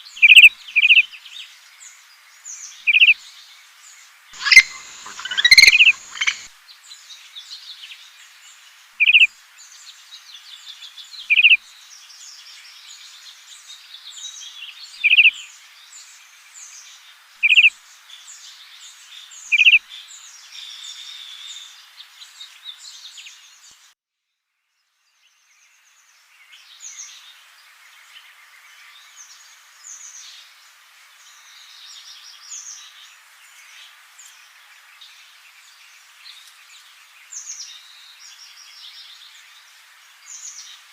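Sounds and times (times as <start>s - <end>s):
chorus of small bird chirps: 0.0s - 3.5s, 4.4s - 23.8s, 31.2s - 40.9s
loud short bird call: 4.4s - 6.5s.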